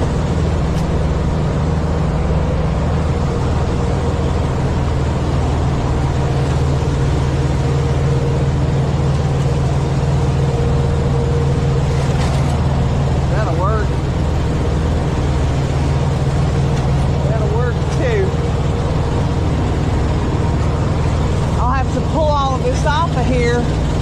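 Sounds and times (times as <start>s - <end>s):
diesel truck engine humming: 0.0s - 24.0s.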